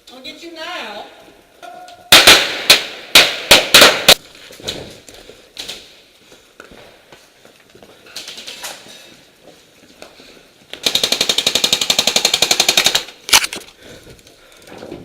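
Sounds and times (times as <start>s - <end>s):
airsoft rifle full-auto burst: 10.8s - 13.4s.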